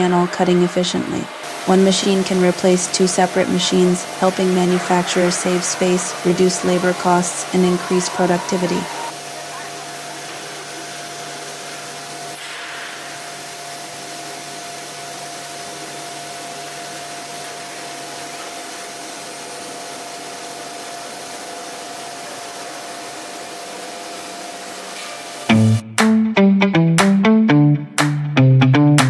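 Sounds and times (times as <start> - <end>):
router machine whirring: 1.3 - 12.4.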